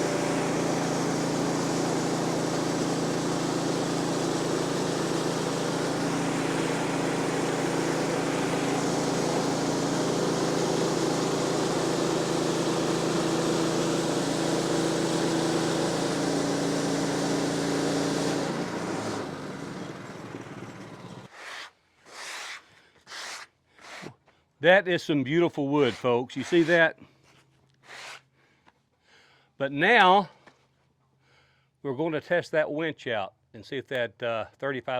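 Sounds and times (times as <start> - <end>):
bandsaw mill running: 0.0 - 24.1, 25.8 - 26.8
short scraping sounds: 21.3 - 24.2, 25.8 - 28.3.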